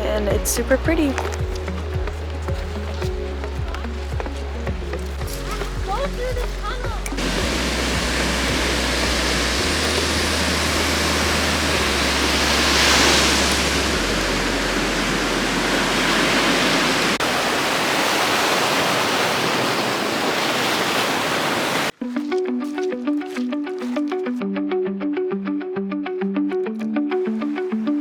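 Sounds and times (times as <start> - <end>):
ocean surf washing onto beach: 0.0 - 22.0.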